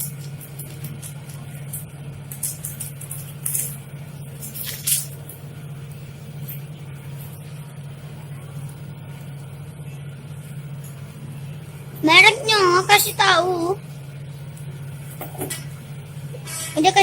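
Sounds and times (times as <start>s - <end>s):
packaging crinkling and rustling: 0.0s - 3.8s, 4.4s - 5.2s.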